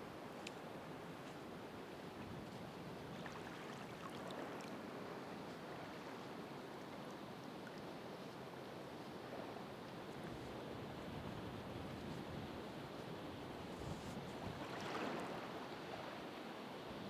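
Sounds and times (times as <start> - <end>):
ocean waves surf: 14.5 - 16.4.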